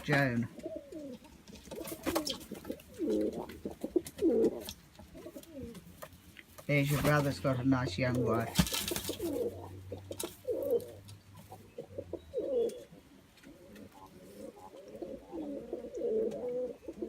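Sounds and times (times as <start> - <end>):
doves cooing: 0.0 - 6.4, 7.0 - 17.0.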